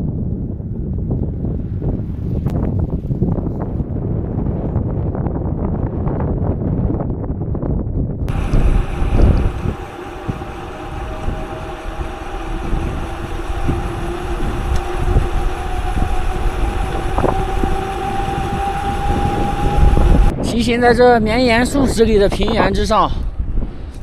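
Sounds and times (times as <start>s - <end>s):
wind buffeting microphone: 0.0s - 24.0s
faint steady hum: 8.3s - 20.3s.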